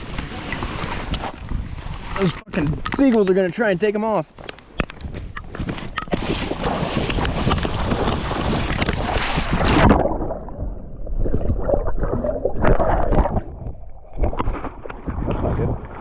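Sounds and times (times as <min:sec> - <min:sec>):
strong wind buffeting microphone: 0:04.8 - 0:14.4.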